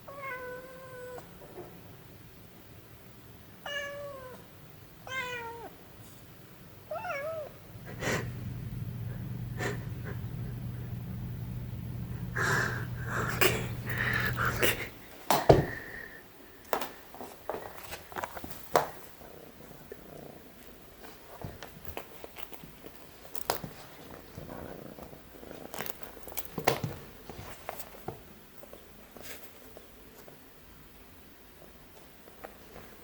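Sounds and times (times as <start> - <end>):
kitten purring softly: 6.9 - 15.0, 19.0 - 26.6.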